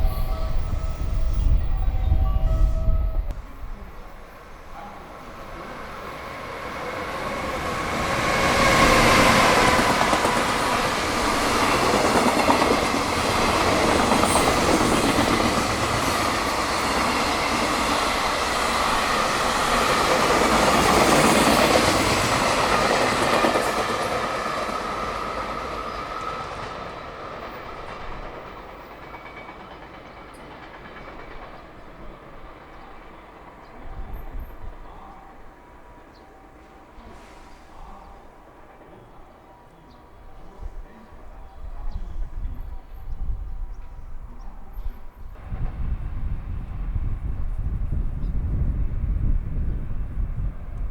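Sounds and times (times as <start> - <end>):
train wheels clattering on rails: 6.1 - 34.8.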